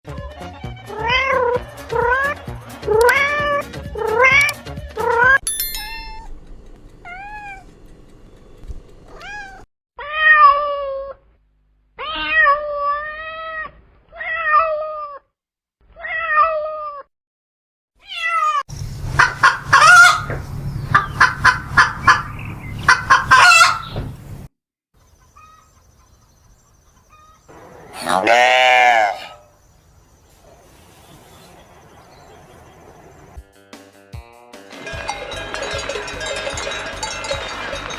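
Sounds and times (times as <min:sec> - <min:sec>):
cats meowing: 0:00.9 - 0:02.4, 0:03.0 - 0:06.3, 0:07.0 - 0:07.7, 0:09.1 - 0:11.2, 0:12.0 - 0:15.2, 0:16.0 - 0:17.1, 0:18.0 - 0:18.6
harsh pulsing animal calls: 0:27.1 - 0:29.6.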